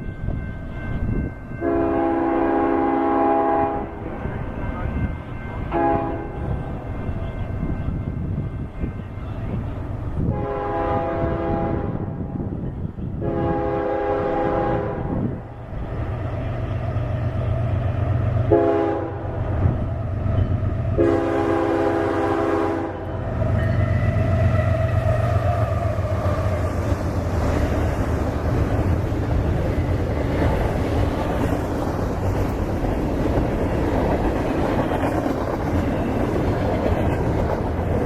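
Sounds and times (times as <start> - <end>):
passing train rumble: 0.0 - 38.0
locomotive air horn: 1.6 - 4.0, 5.7 - 6.4, 10.3 - 12.2, 13.2 - 15.3, 18.5 - 19.4, 21.0 - 26.8.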